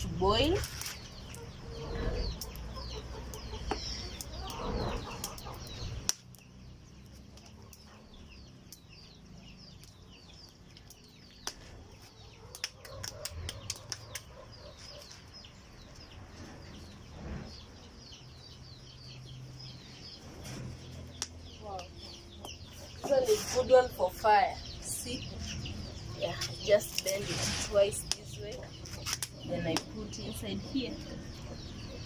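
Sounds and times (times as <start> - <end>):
chicks peeping: 1.0 - 32.0
chickens clucking: 1.2 - 6.1.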